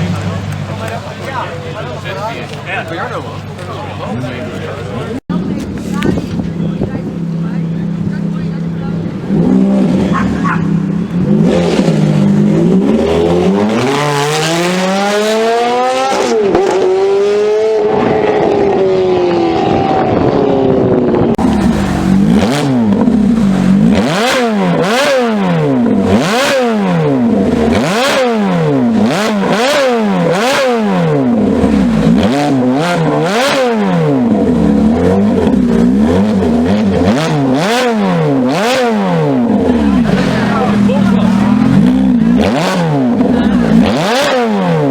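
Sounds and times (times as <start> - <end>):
car engine revving: 0.0 - 44.9
exhaust pops: 20.9 - 44.9.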